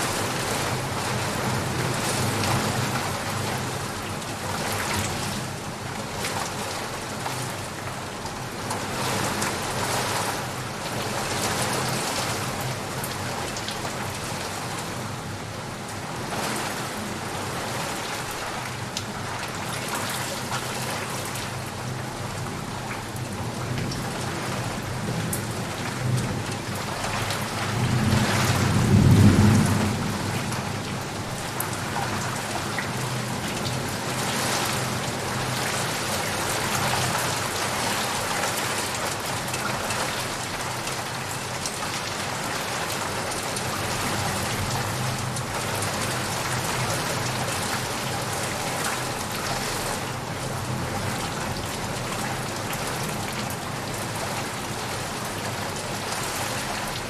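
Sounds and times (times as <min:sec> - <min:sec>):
steady rain: 0:00.0 - 0:57.0
thunder rolling: 0:27.9 - 0:31.4.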